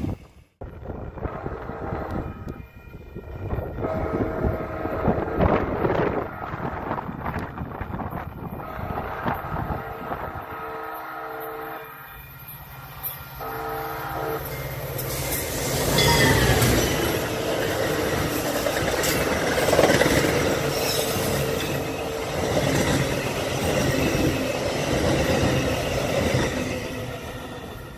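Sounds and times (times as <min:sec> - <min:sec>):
train wheels rumbling on rail: 0:00.0 - 0:11.2, 0:12.2 - 0:27.9
diesel locomotive passing: 0:00.0 - 0:27.9.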